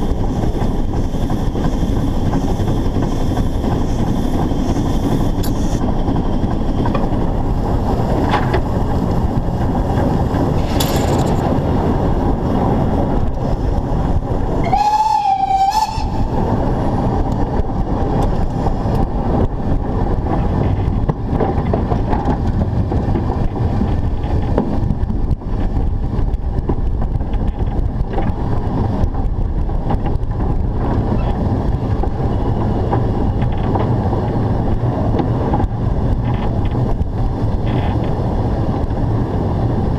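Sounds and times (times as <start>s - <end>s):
steam locomotive rumbling: 0.0s - 39.9s
steam whistle blast: 14.6s - 16.4s.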